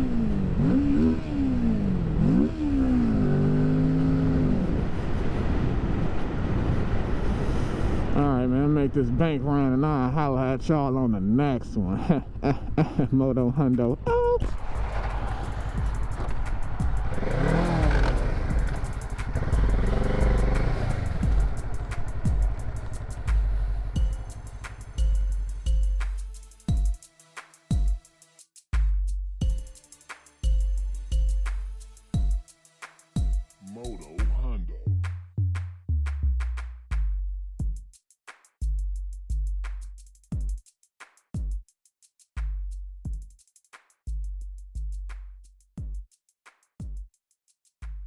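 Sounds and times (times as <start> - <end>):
motorcycle engine revving: 0.0 - 5.8, 14.5 - 25.6.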